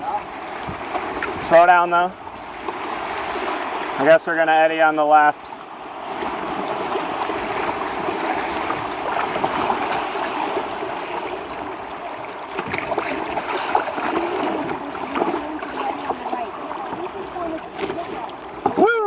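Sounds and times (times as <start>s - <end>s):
short water splashes: 0.0s - 19.0s
river rapids rushing: 5.8s - 19.0s.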